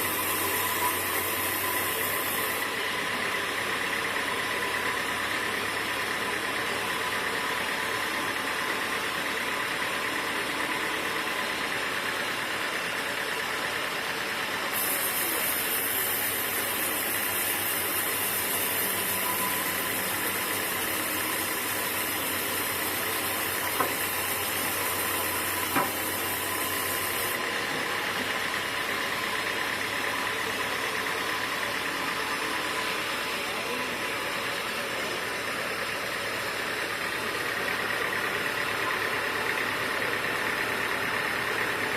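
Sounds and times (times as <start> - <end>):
machine hiss and low hum: 0.0 - 2.9, 14.7 - 27.4
sawmill machinery motor whine: 0.0 - 41.9.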